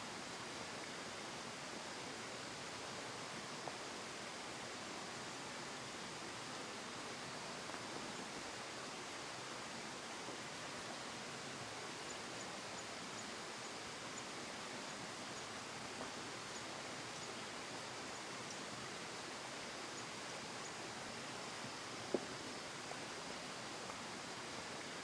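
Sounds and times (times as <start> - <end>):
steady outdoor hiss: 0.0 - 25.0.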